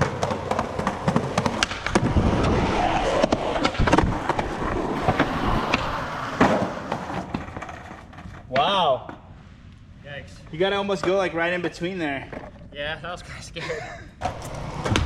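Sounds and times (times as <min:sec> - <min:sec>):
skateboard landing slap: 0:00.0 - 0:07.7, 0:14.2 - 0:15.0
skateboard tail clacks: 0:00.0 - 0:08.4
skateboard wheels rolling on concrete: 0:00.0 - 0:13.2, 0:14.2 - 0:15.0.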